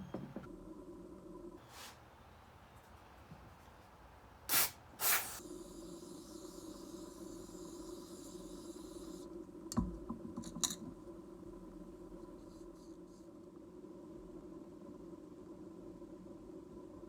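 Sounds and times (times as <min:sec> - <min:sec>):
hissing spray: 0:04.5 - 0:09.2.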